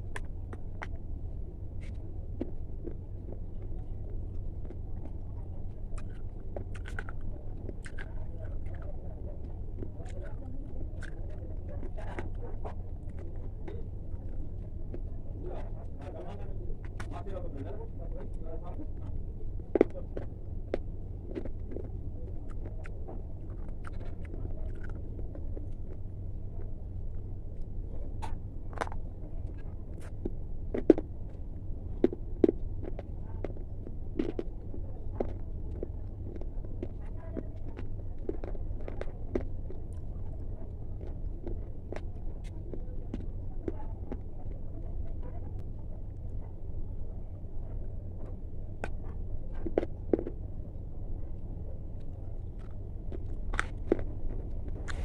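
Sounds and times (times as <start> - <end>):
steady low hum: 0.0 - 55.0
crisp food crunching: 5.6 - 13.4, 19.8 - 26.0, 28.2 - 31.1, 32.0 - 40.2, 51.9 - 55.0.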